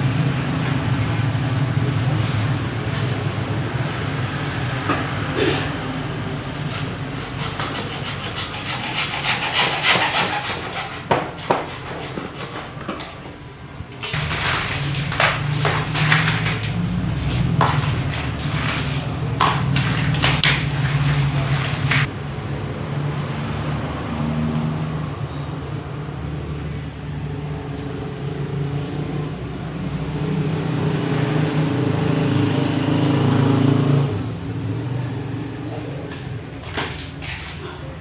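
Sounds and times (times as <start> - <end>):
sharp knocks and scraping: 6.5 - 13.4, 14.0 - 22.1, 35.7 - 37.8.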